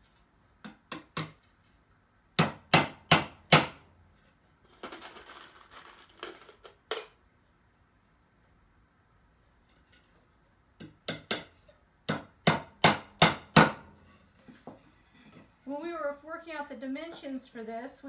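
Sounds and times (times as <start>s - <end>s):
hammer nailing boards: 2.4s - 3.8s, 10.8s - 13.9s.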